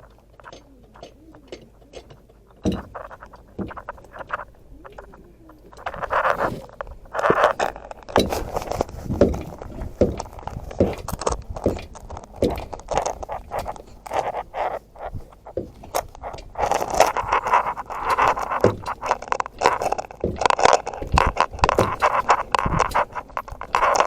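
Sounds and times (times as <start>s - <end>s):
metal tools clinking and scraping: 0.0s - 24.0s.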